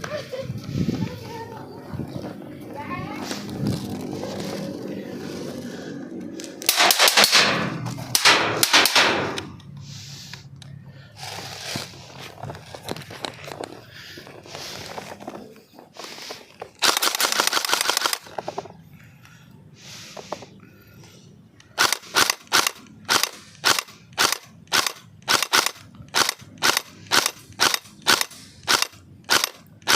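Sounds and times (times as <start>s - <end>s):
airsoft rifle full-auto bursts: 6.4s - 9.5s, 16.8s - 18.4s, 21.7s - 29.9s.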